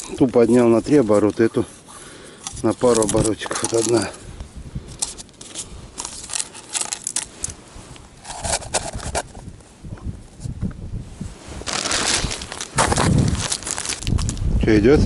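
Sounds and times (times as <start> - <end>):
rustling: 0.0 - 4.3, 4.9 - 9.8, 11.2 - 14.5
handling scrapes and clicks: 2.4 - 4.2, 4.9 - 9.5.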